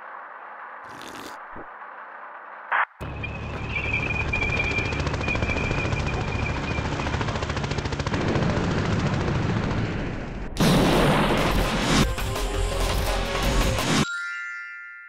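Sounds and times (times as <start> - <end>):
loud burst of noise: 10.0 - 12.1.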